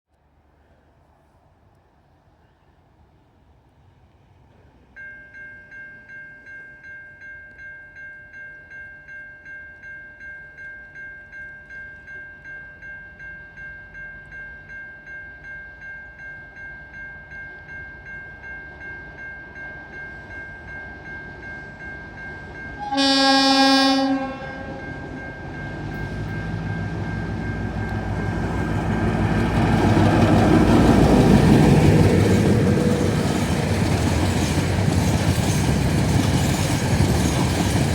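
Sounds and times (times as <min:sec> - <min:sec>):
train engine and wheel noise: 0:00.2 - 0:37.9
level crossing warning bells: 0:05.0 - 0:37.9
locomotive horn blast: 0:22.8 - 0:25.0.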